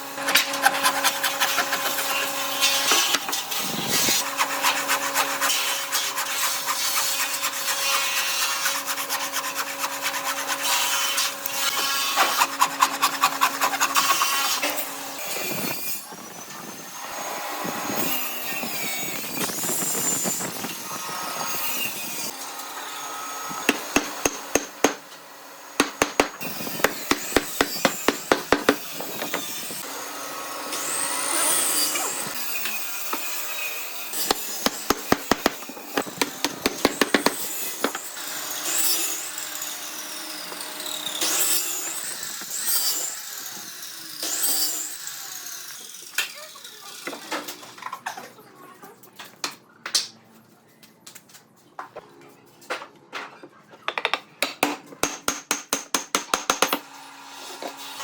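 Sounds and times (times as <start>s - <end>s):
hand tools scraping and sawing wood: 0.0s - 16.2s, 18.8s - 29.9s, 30.7s - 43.6s.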